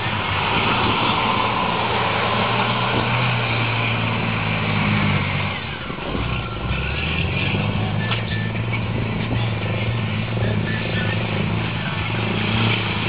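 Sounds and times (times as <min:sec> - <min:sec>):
truck engine running hard: 0:00.0 - 0:13.0.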